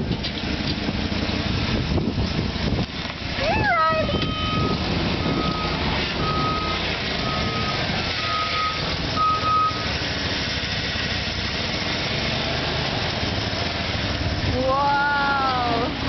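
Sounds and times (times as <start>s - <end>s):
truck engine running: 0.0s - 16.0s
back-up alarm beeping: 4.1s - 9.9s.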